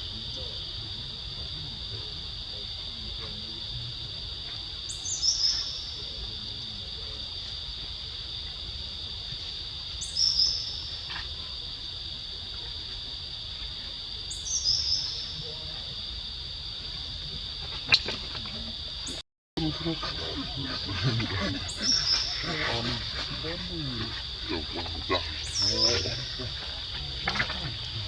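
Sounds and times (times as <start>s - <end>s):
insect chorus drone: 0.0s - 28.0s.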